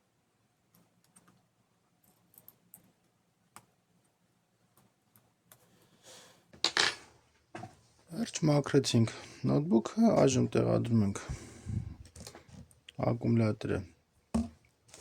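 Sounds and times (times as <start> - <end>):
small parts clicking and tapping: 0.7 - 5.7.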